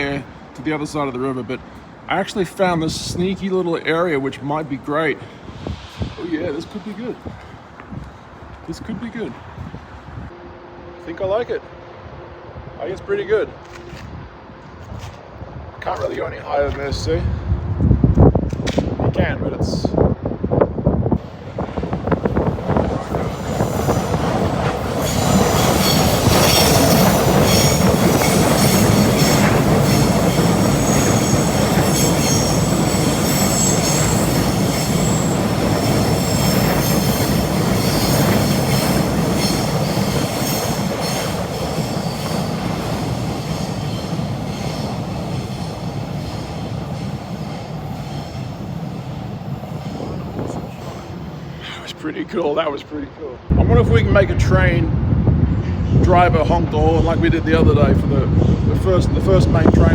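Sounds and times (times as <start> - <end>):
passenger train running past: 0.0 - 59.9
train wheels squealing: 23.2 - 51.5.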